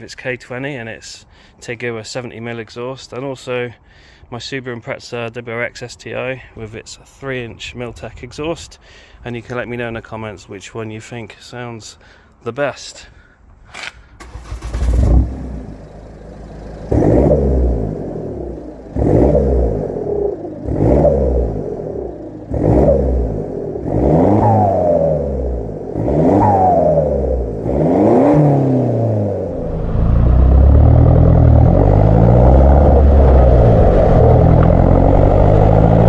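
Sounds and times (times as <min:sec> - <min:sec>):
diesel engine revving: 0:14.2 - 0:36.0.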